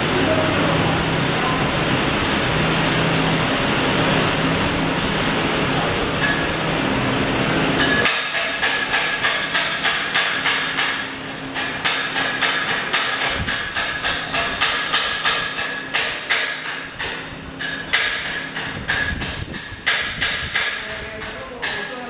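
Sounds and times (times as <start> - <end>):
steady hiss: 0.0 - 16.6
hammer striking metal: 7.8 - 22.0.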